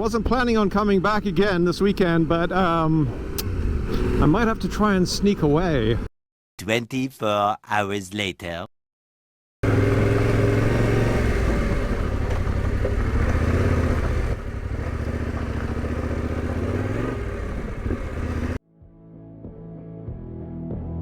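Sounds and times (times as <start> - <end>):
motorcycle engine running: 0.0 - 6.0, 9.6 - 18.6.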